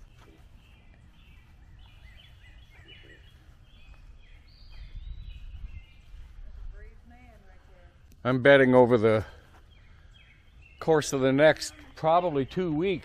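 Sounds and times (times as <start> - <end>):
low microphone rumble: 0.0 - 8.1
birds chirping and trilling: 0.0 - 13.0.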